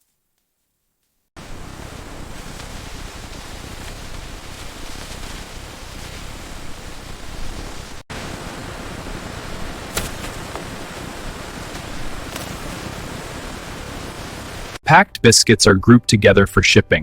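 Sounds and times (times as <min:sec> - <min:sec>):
packaging machinery hissing: 0:01.4 - 0:14.8.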